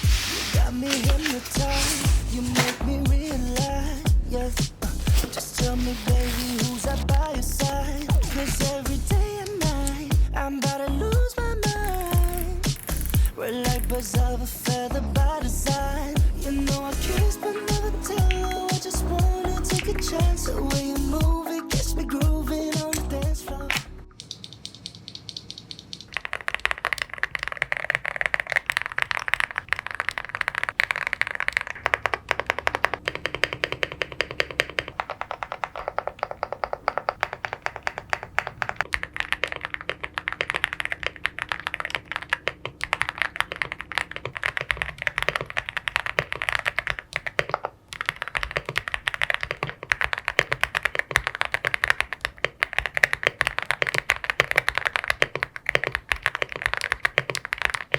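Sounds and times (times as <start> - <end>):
fast mechanical keyboard typing: 0.2 - 4.1, 5.0 - 10.1, 11.6 - 14.3, 24.2 - 57.9.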